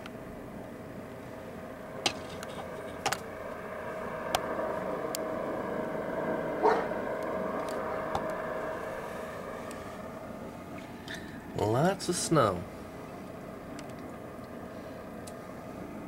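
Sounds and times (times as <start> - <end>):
steady background hum: 0.0 - 16.0
dog barking: 6.6 - 7.0.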